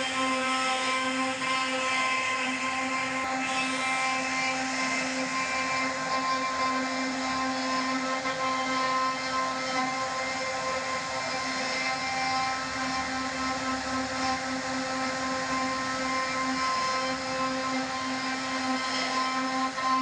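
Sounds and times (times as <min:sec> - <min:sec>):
hiss of cutting wood: 0:00.0 - 0:20.0
router spindle motor whine: 0:00.0 - 0:20.0.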